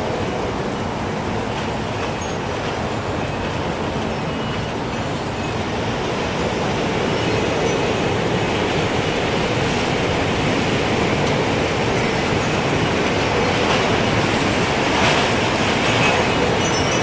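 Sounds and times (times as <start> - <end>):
gusting wind rushing: 0.0 - 17.0
wind chime tinkling: 16.0 - 17.0.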